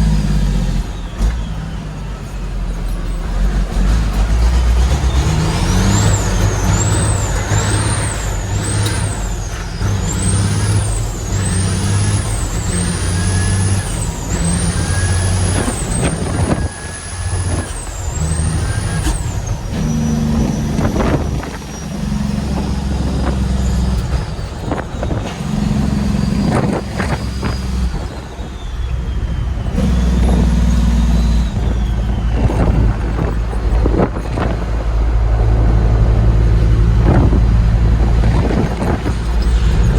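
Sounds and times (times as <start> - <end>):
diesel truck accelerating: 0.0 - 39.9
turbo whistle: 24.9 - 33.4.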